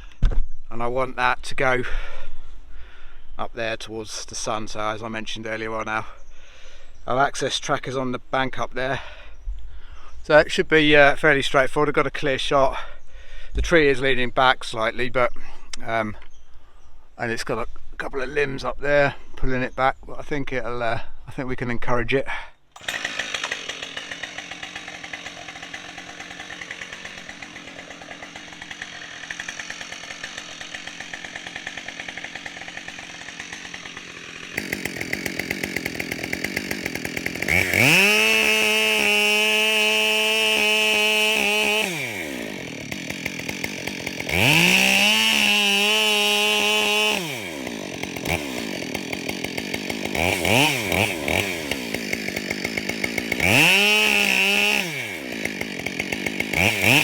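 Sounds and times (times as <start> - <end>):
chainsaw cutting wood: 22.7 - 57.0
chainsaw idling and revving: 22.7 - 57.0.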